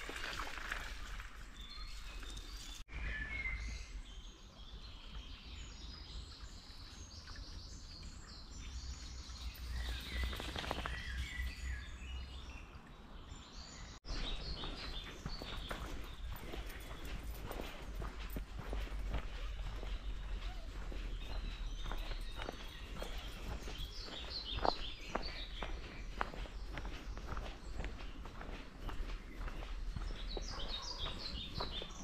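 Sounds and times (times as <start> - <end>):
songbirds chirping: 0.0 - 32.0.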